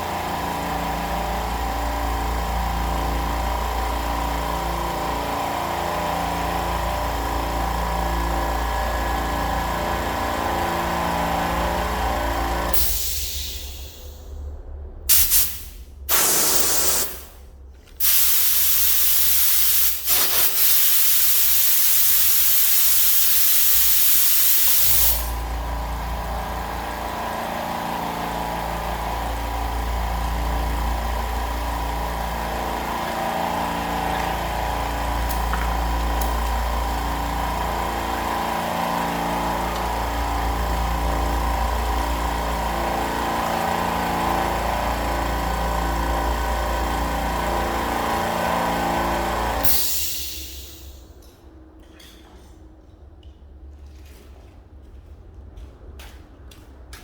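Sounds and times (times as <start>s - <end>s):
air compressor humming: 0.0s - 14.4s, 15.1s - 51.2s
compressed air hissing: 12.7s - 14.2s, 15.1s - 25.5s, 49.6s - 51.0s.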